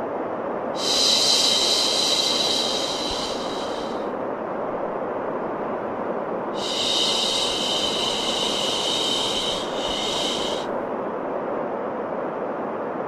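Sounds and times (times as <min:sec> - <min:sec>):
white noise rush: 0:00.0 - 0:13.0
higher hiss: 0:00.8 - 0:04.2, 0:06.6 - 0:10.8.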